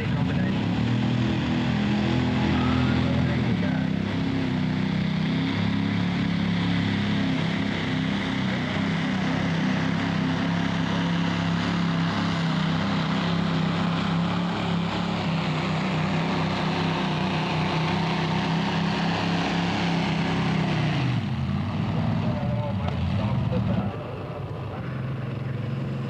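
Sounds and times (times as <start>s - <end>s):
tractor engine droning under load: 0.0s - 26.0s.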